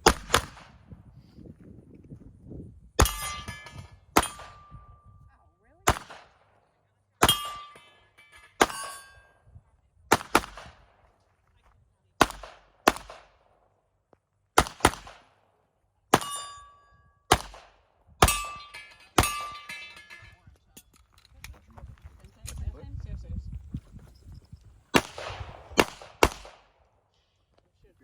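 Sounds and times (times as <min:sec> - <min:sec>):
pistol shots: 0:00.0 - 0:00.8, 0:03.0 - 0:04.7, 0:05.8 - 0:06.5, 0:07.2 - 0:07.9, 0:08.6 - 0:09.2, 0:10.1 - 0:11.0, 0:12.2 - 0:13.6, 0:14.6 - 0:15.4, 0:16.1 - 0:16.6, 0:17.3 - 0:20.0, 0:24.9 - 0:26.8
steel targets ringing: 0:03.0 - 0:05.0, 0:07.2 - 0:09.4, 0:16.2 - 0:17.1, 0:18.2 - 0:20.4.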